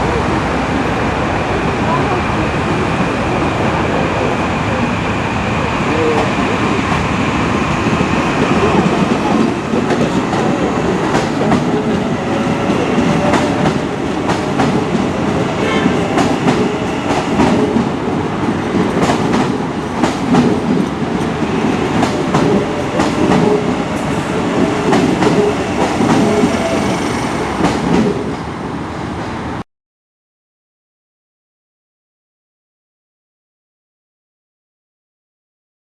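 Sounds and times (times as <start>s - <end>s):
train rumble: 0.0s - 29.6s
train wheels clicking over rail joints: 18.7s - 28.4s.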